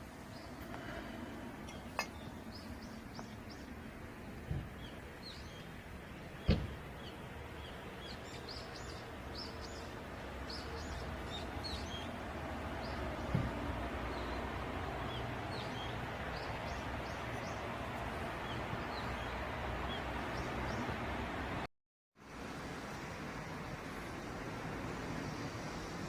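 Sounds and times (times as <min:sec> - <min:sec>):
small birds chirping: 0:00.3 - 0:21.0.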